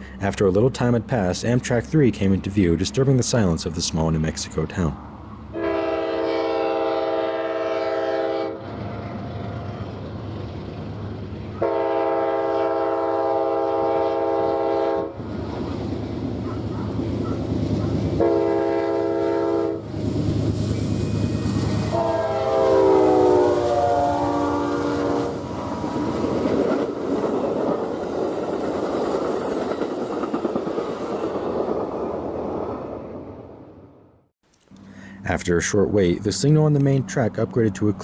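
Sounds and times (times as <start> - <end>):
train rumble: 0.0 - 34.0
train air horn blasts: 5.6 - 8.8, 11.6 - 15.2, 18.2 - 20.0, 21.8 - 26.2.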